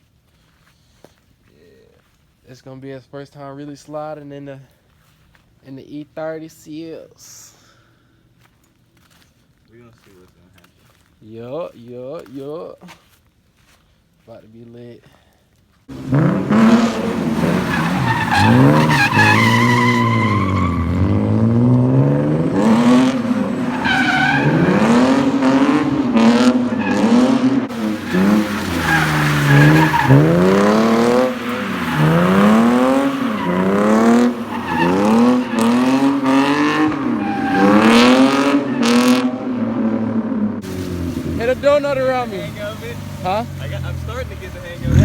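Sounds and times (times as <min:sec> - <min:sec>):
car engine revving: 0:15.9 - 0:45.0
tyres squealing: 0:15.9 - 0:45.0.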